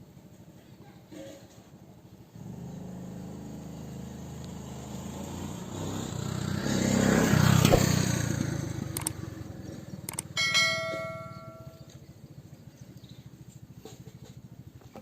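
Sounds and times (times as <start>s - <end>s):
sharp clicks: 9.0s - 9.2s, 10.1s - 10.4s.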